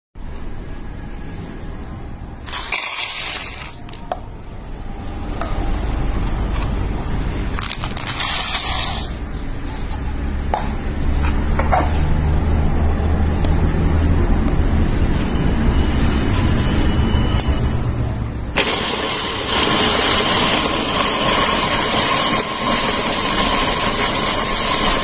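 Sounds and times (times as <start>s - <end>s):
coffee grinder motor humming: 18.6s - 25.0s.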